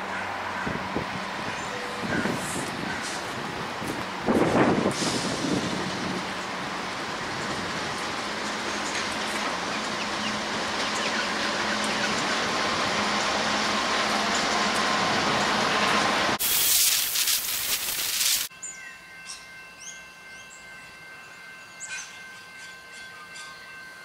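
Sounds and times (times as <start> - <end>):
freight wagons rolling on rails: 0.3 - 18.5
loud hiss: 16.4 - 18.5.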